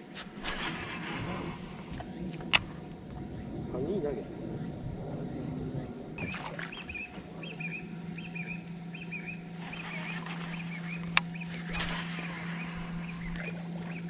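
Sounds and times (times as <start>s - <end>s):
steady low hum: 0.0s - 14.0s
bird chirping: 5.8s - 14.0s.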